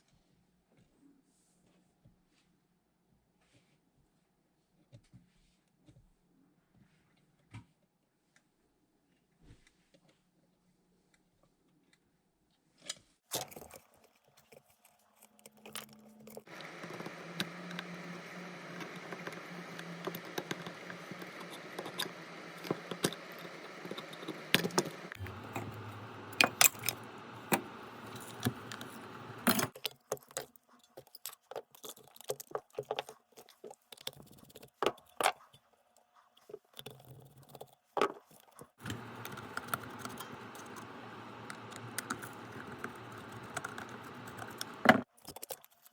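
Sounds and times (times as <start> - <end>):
hand tools clicking and scraping: 13.4 - 35.4, 36.4 - 45.9
steady electric hum: 16.5 - 29.7, 38.8 - 45.1.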